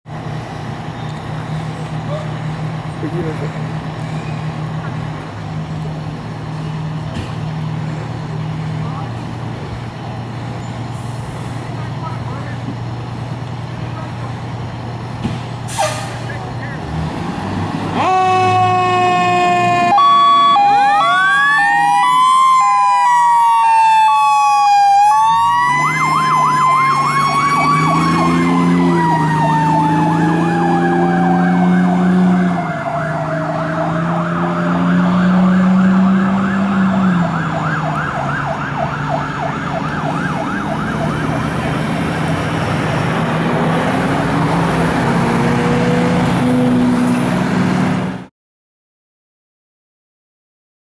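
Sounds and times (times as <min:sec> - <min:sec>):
truck engine: 0:00.0 - 0:48.3
two-tone siren: 0:18.0 - 0:42.3
warbling yelp siren: 0:18.0 - 0:42.4
wailing siren: 0:18.0 - 0:47.3.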